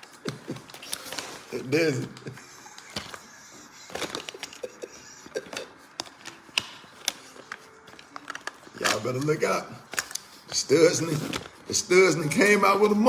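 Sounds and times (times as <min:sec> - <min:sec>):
packaging being handled: 0:00.0 - 0:13.0.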